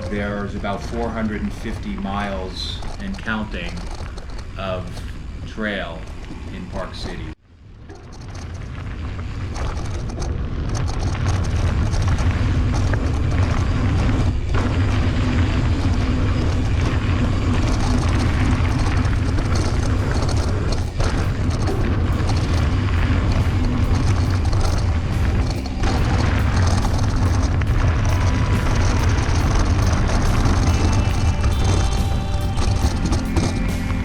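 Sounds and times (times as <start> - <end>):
mountain bike rolling rumble: 0.0 - 34.0
wind buffeting microphone: 0.0 - 34.0.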